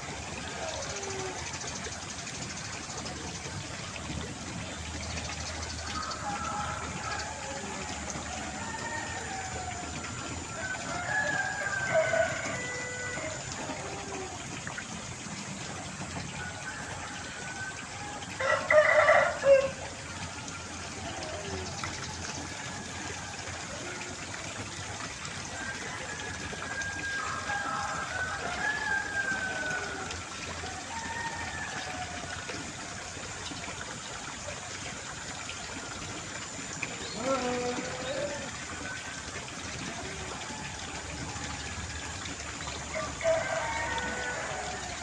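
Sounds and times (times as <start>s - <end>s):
countryside background hiss: 0.0s - 45.0s
rooster crowing: 5.9s - 14.2s, 16.4s - 19.9s, 25.5s - 32.3s, 42.9s - 45.0s.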